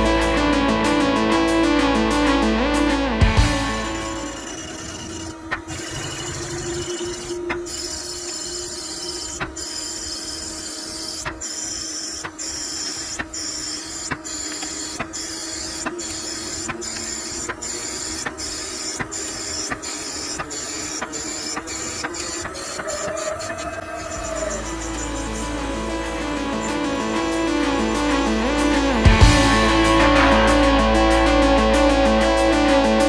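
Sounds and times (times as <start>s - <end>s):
machine humming and hissing: 0.0s - 33.0s.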